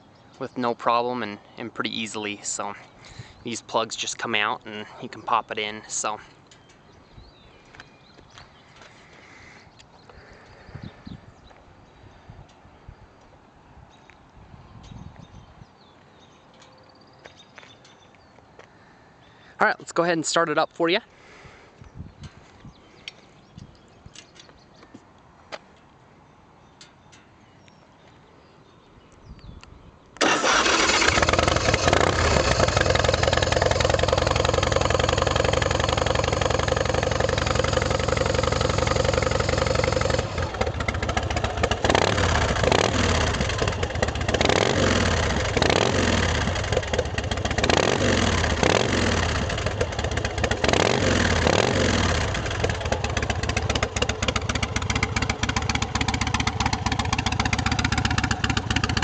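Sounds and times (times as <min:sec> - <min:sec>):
motorcycle engine idling and revving: 0:30.3 - 0:59.0.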